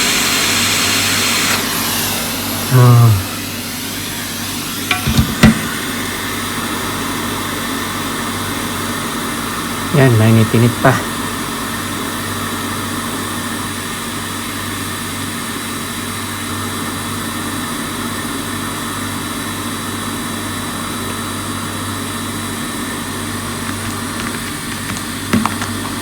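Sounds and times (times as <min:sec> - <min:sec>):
hot air station blowing: 0:00.0 - 0:14.2, 0:19.5 - 0:26.0.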